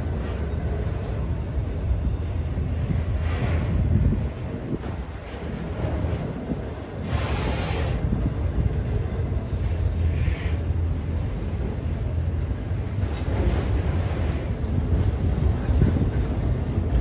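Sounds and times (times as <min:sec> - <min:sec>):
freight train wheels rumbling: 0:00.0 - 0:17.0
train hissing: 0:07.0 - 0:08.0.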